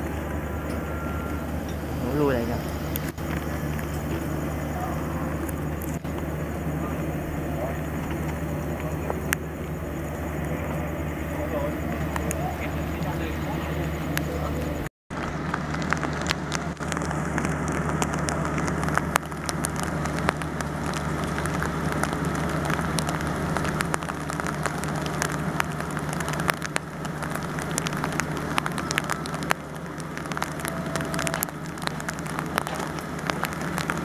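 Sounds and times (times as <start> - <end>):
rain falling: 0.0 - 34.0
raindrops ticking on surface: 0.0 - 34.0
steady low hum: 0.0 - 34.0.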